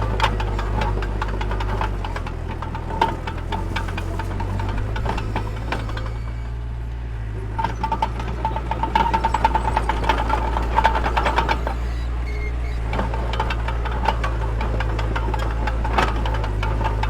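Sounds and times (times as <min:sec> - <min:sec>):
metallic track clattering: 0:00.0 - 0:06.7, 0:07.3 - 0:17.0
diesel engine droning: 0:00.0 - 0:17.0
track squeal: 0:04.1 - 0:15.8.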